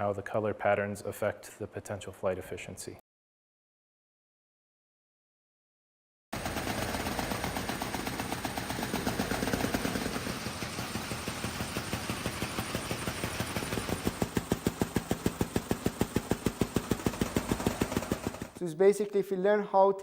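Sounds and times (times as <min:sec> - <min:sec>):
mechanical flapping clatter: 0:06.4 - 0:18.6.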